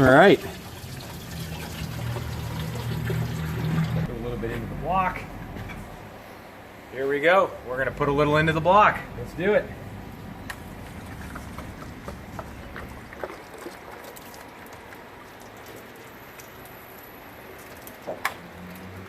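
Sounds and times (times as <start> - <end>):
water pouring: 0.0 - 4.1, 10.6 - 16.2.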